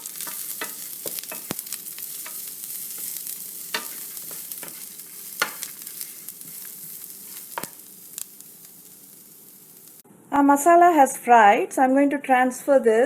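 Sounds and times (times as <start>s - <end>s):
utensil clicking against pan: 0.0s - 8.4s
onions sizzling in oil: 0.0s - 10.0s.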